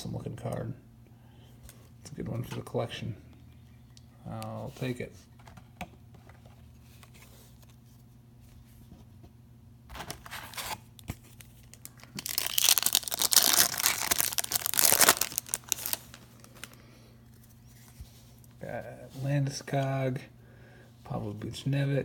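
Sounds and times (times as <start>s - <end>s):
foil wrapper tearing and crinkling: 9.9s - 16.8s.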